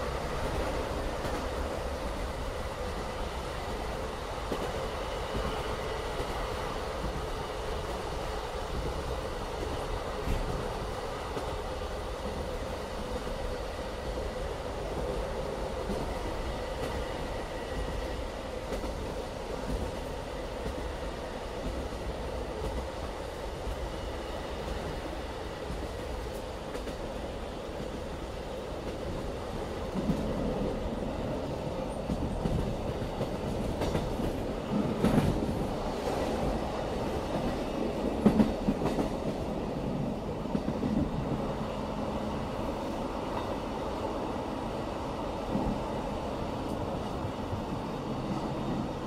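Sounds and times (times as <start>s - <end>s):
train wheels rumbling on track: 0.0s - 49.0s
rail-joint clacks: 31.9s - 36.5s, 37.2s - 39.5s.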